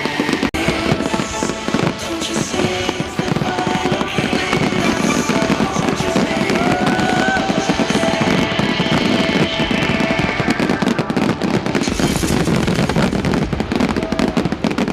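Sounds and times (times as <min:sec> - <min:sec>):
fireworks crackling: 0:00.0 - 0:14.9.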